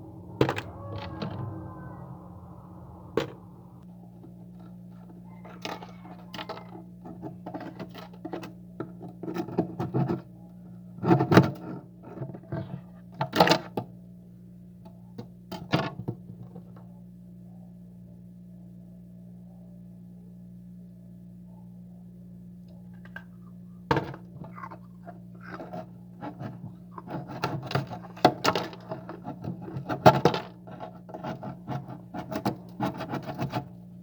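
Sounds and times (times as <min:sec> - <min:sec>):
steady low hum: 0:00.0 - 0:04.1.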